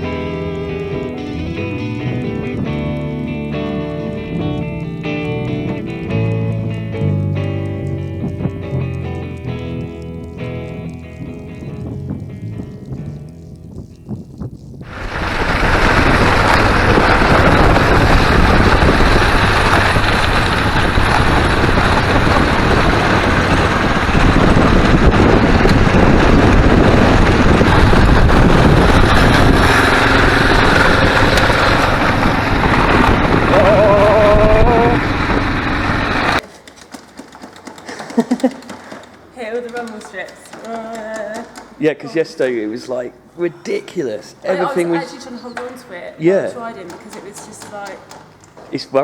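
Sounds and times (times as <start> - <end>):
wind rushing over microphone: 0.0 - 10.0, 10.7 - 36.4
motorcycle engine: 0.0 - 42.0.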